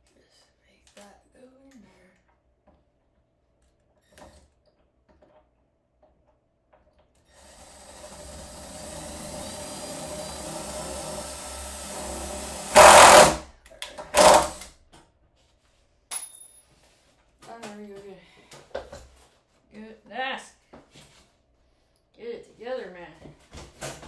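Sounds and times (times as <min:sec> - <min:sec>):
power drill driving a screw: 0:07.3 - 0:14.7.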